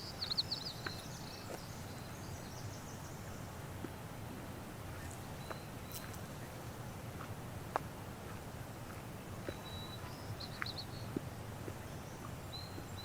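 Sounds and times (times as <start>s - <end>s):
small bird chirping: 0.0s - 3.4s, 9.5s - 13.0s.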